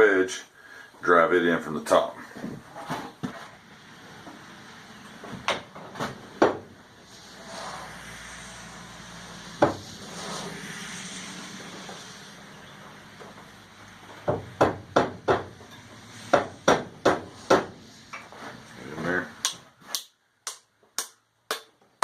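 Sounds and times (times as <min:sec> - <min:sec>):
knocks of wood and metal: 0:05.3 - 0:06.7, 0:14.1 - 0:18.4.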